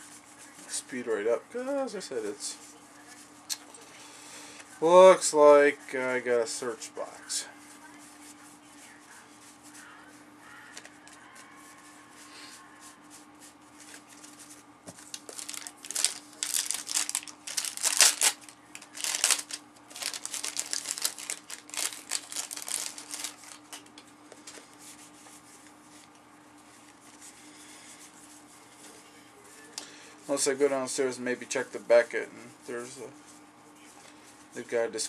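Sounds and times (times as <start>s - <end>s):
cellophane wrapper crinkling and tearing: 15.0s - 23.9s.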